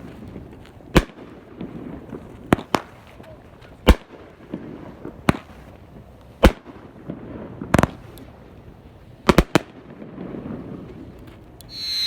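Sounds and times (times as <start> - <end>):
fireworks bangs: 11.7 - 12.0.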